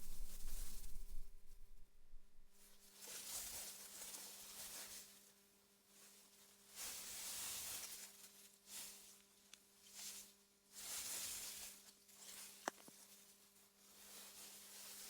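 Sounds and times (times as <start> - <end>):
wind through grass: 0.0 - 2.6
faint steady hum: 0.0 - 2.7.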